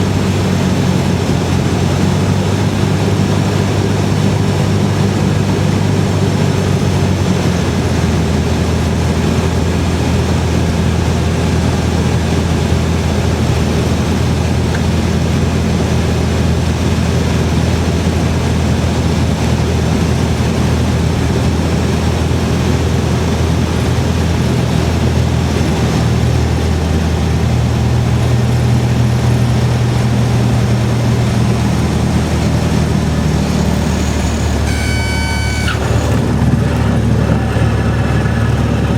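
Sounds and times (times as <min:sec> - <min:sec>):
aircraft engine and propeller droning: 0:00.0 - 0:38.9
high steady warning tone: 0:33.9 - 0:36.5.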